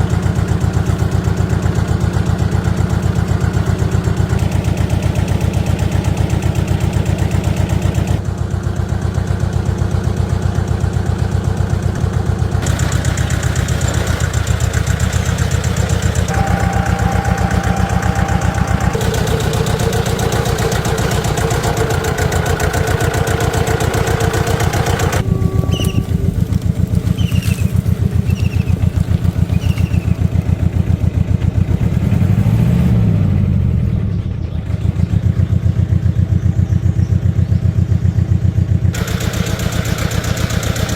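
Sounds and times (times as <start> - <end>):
atv engine running: 0.0 - 40.9
short high chirps: 16.3 - 30.2.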